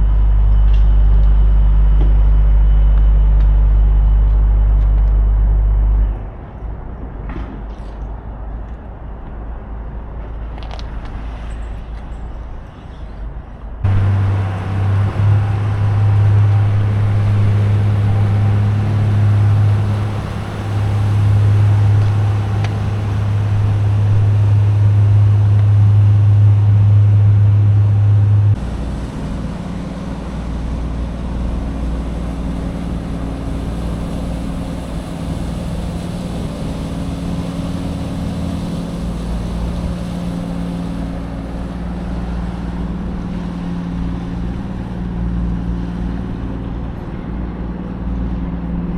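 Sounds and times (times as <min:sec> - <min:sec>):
ferry boat engine drone: 0:00.0 - 0:48.9
lower-pitched engine hum: 0:00.0 - 0:48.9.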